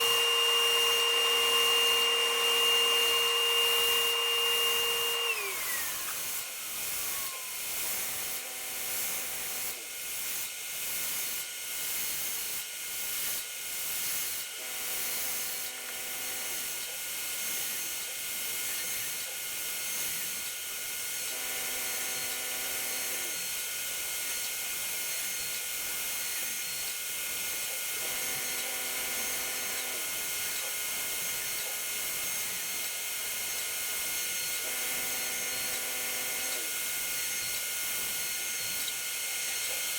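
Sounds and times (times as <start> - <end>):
router cutting wood whine: 0.0 - 39.9.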